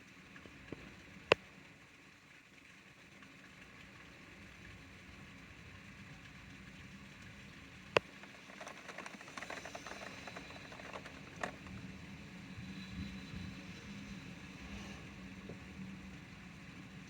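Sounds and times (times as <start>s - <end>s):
rain falling: 0.0s - 12.6s
drops pattering on hard surfaces: 8.0s - 11.8s.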